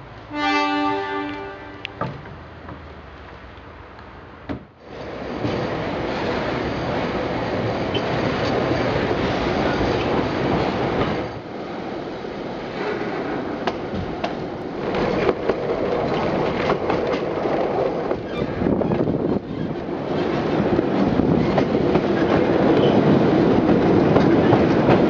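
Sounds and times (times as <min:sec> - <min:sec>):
train rumbling on rails: 0:00.0 - 0:25.0
wheels clacking over track: 0:12.6 - 0:25.0.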